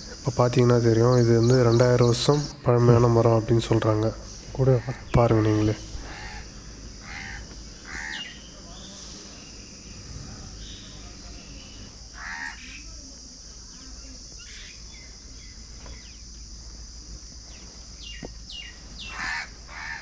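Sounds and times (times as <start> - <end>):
harsh bird calls: 0.0 - 13.0, 13.7 - 16.6, 17.4 - 20.0
steady high hiss: 0.0 - 20.0.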